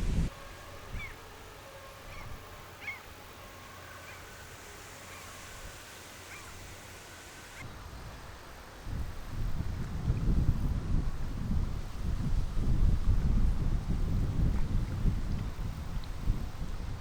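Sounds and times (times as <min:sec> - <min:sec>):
faint steady hum: 0:00.0 - 0:17.0
birds short high calls: 0:03.9 - 0:07.6.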